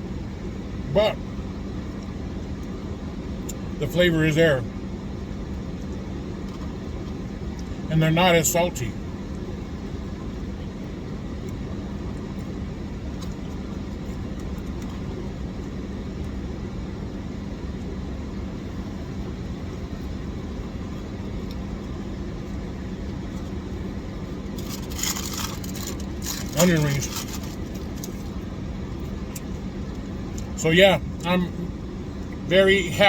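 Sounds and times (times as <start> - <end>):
car engine idling: 18.6 - 33.0.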